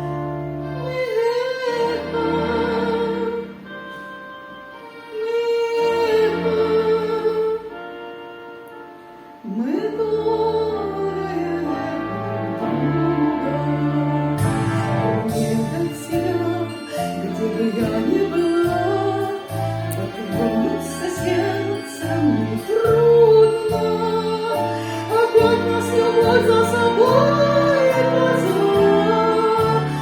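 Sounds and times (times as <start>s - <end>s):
bass line: 12.0s - 16.6s.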